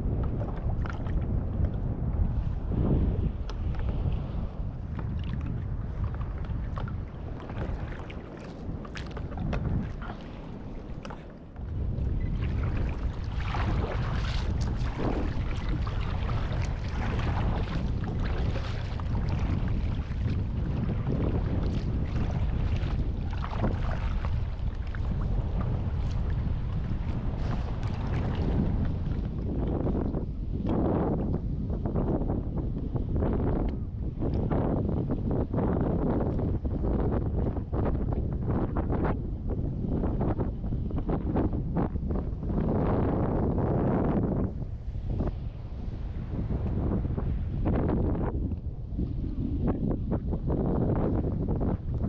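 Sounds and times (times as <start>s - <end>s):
water splashing against hull: 0.0s - 31.5s
wind buffeting microphone: 0.0s - 52.0s.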